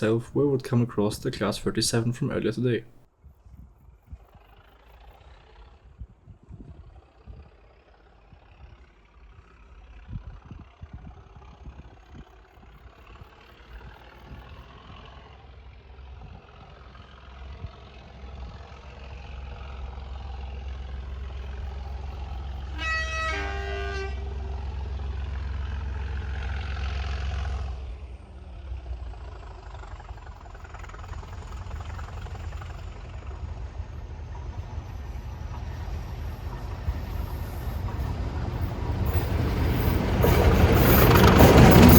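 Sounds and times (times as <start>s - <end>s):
diesel locomotive engine rumble: 0.0s - 3.1s, 3.7s - 41.9s
train horn blast: 22.6s - 25.0s.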